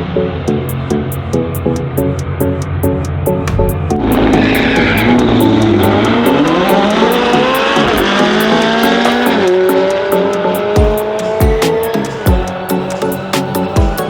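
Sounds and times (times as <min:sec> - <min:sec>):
background music with beat: 0:00.0 - 0:14.0
car accelerating hard: 0:03.5 - 0:13.3.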